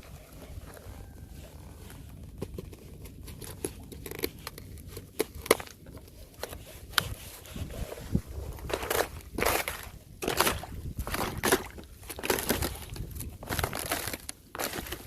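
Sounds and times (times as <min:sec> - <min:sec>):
thin ice cracking: 0:02.8 - 0:06.0, 0:08.6 - 0:15.0.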